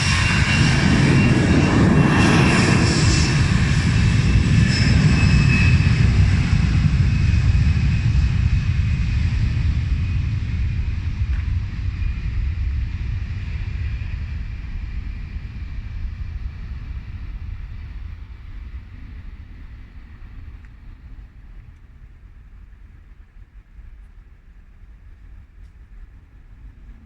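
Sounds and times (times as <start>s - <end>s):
airliner engines passing: 0.0s - 27.0s.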